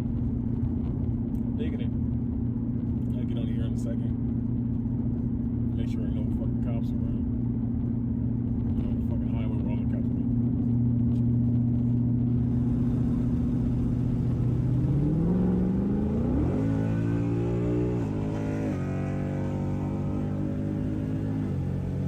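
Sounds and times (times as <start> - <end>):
car engine revving from inside cabin: 10.8 - 22.0.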